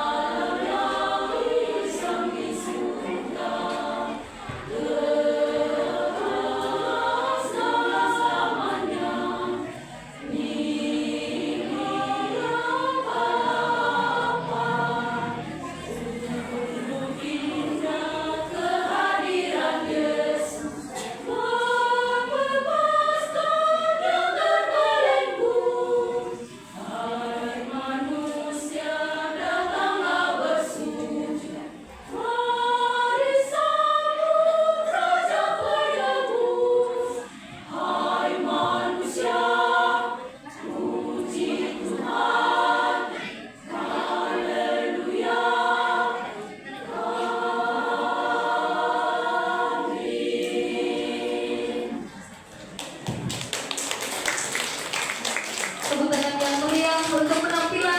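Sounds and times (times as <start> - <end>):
women's choir singing: 0.0 - 57.9.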